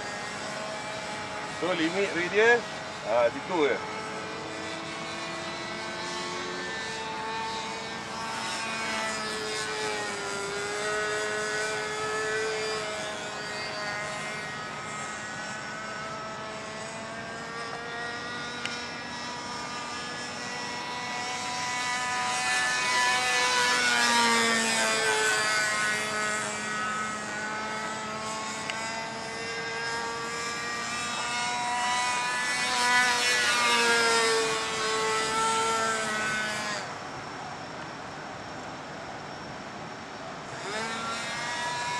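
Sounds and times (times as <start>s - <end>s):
model airplane motor whining: 0.0s - 41.9s.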